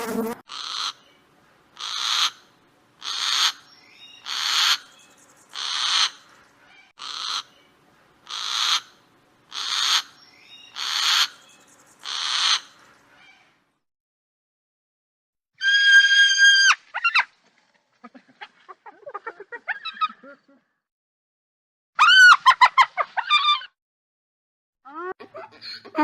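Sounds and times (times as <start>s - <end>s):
owl screeching: 0.5s - 1.0s, 1.8s - 2.4s, 3.0s - 3.6s, 4.2s - 4.9s, 5.5s - 6.2s, 7.0s - 7.5s, 8.3s - 10.1s, 10.7s - 11.4s, 12.0s - 13.4s, 15.6s - 17.2s, 22.0s - 22.4s.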